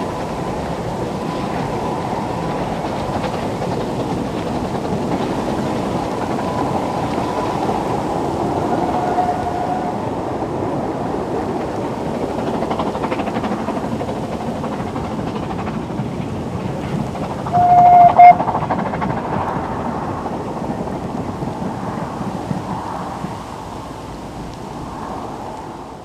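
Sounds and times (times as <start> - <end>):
steam train running: 0.0 - 25.9
wind on microphone: 0.0 - 26.0
steam whistle blast: 17.5 - 18.4.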